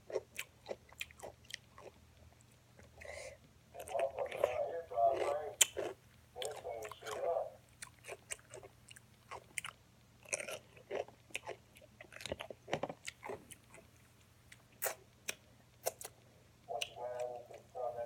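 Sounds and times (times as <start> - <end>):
person chewing and crunching food: 0.0 - 18.0
mouth clicks: 14.8 - 17.9.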